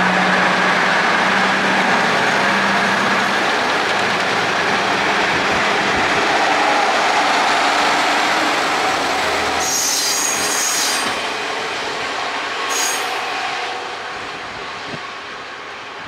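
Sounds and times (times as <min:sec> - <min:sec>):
high-pitched wheel squeal: 0:09.6 - 0:11.2, 0:12.7 - 0:13.2.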